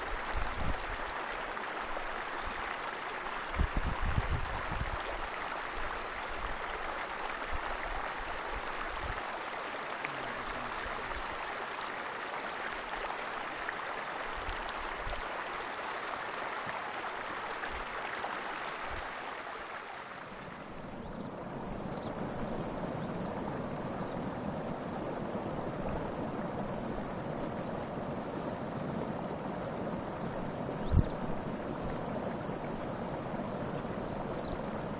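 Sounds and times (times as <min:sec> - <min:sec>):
waterfall rushing: 0:04.5 - 0:20.9.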